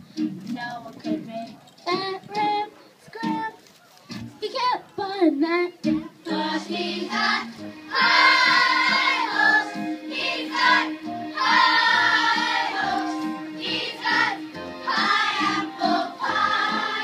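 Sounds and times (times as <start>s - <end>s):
instrumental backing: 5.4s - 17.0s
voices singing together: 6.2s - 17.0s.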